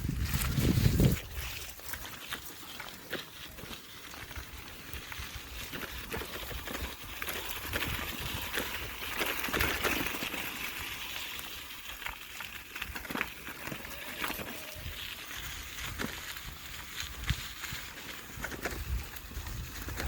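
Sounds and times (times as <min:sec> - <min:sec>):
wind rumbling on microphone: 0:00.0 - 0:02.1, 0:04.2 - 0:10.1, 0:13.6 - 0:20.0
tyres crunching over rough ground: 0:00.0 - 0:20.0.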